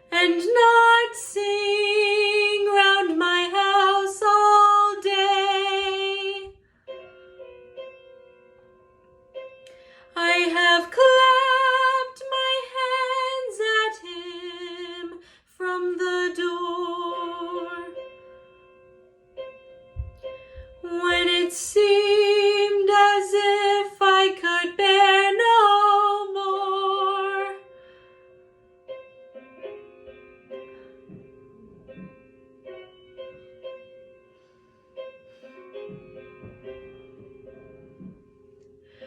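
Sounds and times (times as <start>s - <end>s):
woman singing with vibrato: 0.0s - 6.6s, 10.1s - 18.0s, 20.8s - 27.6s
piano accompaniment: 0.0s - 39.0s.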